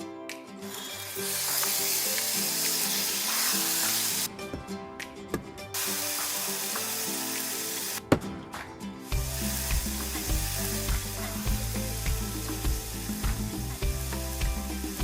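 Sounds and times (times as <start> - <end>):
background guitar music: 0.0 - 15.0
food sizzling in hot oil: 0.8 - 4.3, 5.8 - 8.0, 9.1 - 15.0.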